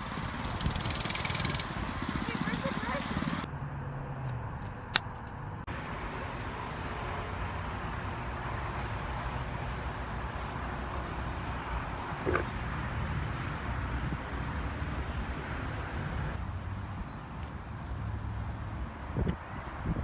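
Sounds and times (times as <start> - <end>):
mini bike engine running: 0.0 - 3.5, 12.2 - 16.3.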